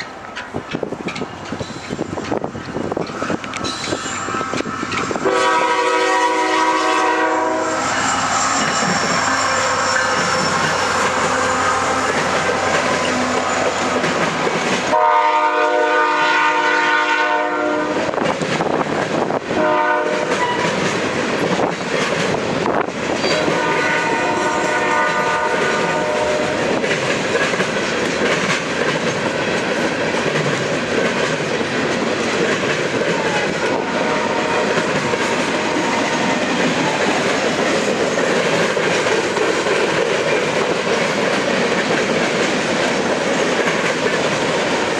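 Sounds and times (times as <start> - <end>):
freight train running on rails: 0.0 - 44.9
locomotive air horn blasts: 5.2 - 14.0, 14.9 - 18.1, 19.5 - 20.8, 23.3 - 26.7, 33.6 - 36.1.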